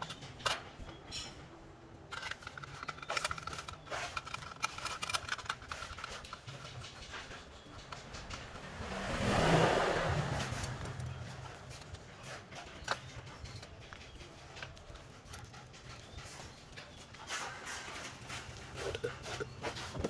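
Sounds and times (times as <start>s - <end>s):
clicks and scrapes: 2.1s - 9.6s, 10.2s - 20.0s
scooter engine idling: 6.4s - 15.8s.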